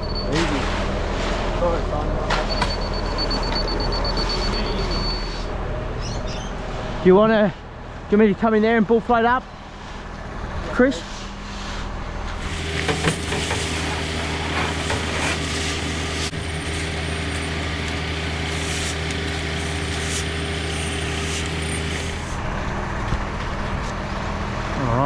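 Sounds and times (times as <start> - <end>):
heavy diesel engine running: 12.4 - 23.4.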